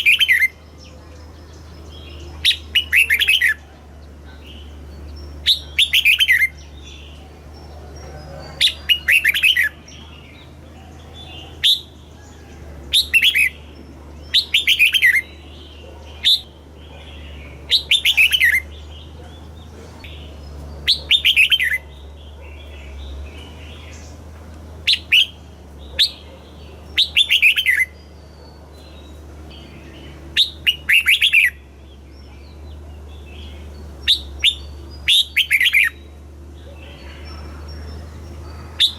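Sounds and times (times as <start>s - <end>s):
bird whistling song: 0.0s - 0.6s, 2.4s - 3.6s, 4.4s - 7.2s, 8.6s - 9.8s, 11.5s - 12.0s, 12.9s - 13.6s, 14.2s - 18.8s, 20.1s - 23.0s, 24.8s - 36.1s.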